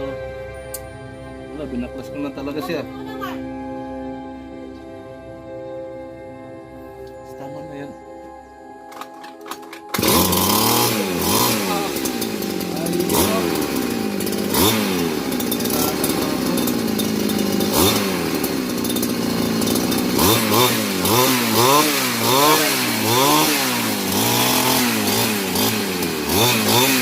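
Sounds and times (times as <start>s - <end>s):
brush cutter engine revving: 8.9s - 27.0s.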